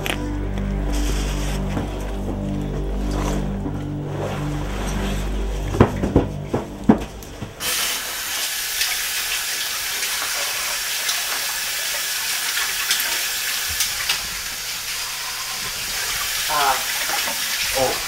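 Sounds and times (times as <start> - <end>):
music with held low notes: 0.0 - 7.7.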